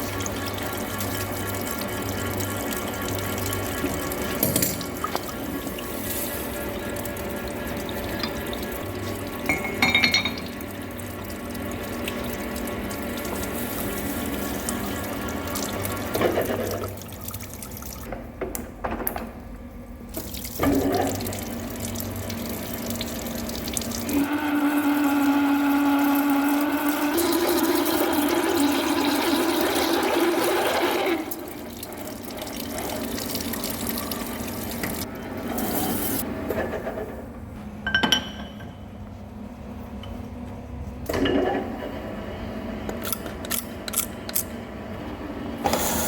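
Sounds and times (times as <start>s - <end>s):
coolant splashing: 0.0s - 18.1s, 20.1s - 36.3s.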